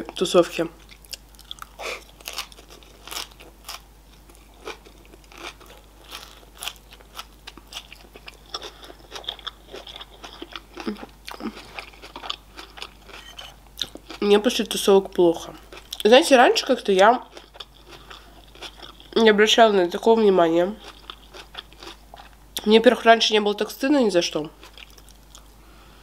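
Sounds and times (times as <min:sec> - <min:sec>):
person chewing crunchy salad: 0:00.8 - 0:14.2, 0:15.5 - 0:16.1, 0:17.2 - 0:19.2, 0:20.8 - 0:22.6, 0:24.6 - 0:25.6.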